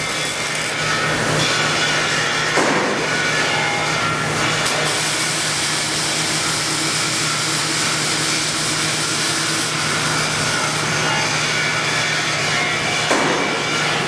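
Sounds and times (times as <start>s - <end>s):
welding arc hissing buzz: 0.0s - 13.8s.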